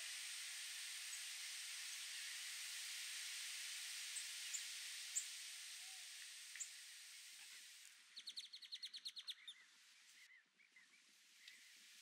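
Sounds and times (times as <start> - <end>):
background hiss: 0.0 - 10.3, 11.0 - 12.0.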